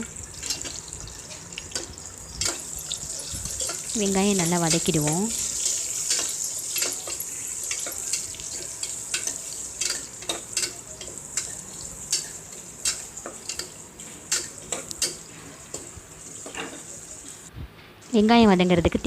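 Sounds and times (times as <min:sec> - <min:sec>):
onion sizzling in hot oil: 0:00.0 - 0:17.5.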